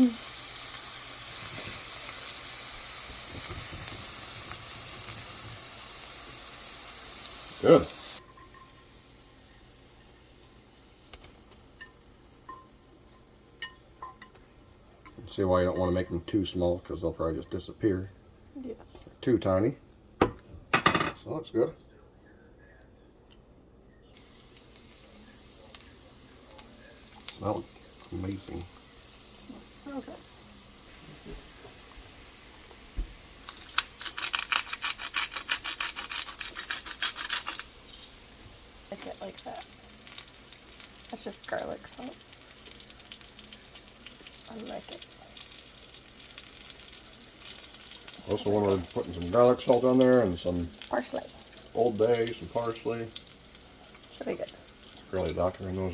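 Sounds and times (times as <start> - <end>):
utensil clinking on frying pan: 8.2 - 8.9, 11.8 - 14.4
salt shaker shaking: 33.4 - 38.2.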